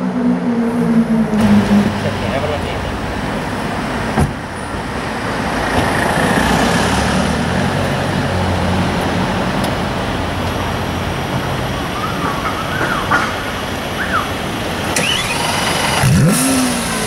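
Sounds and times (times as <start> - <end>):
thump: 4.1 - 4.4.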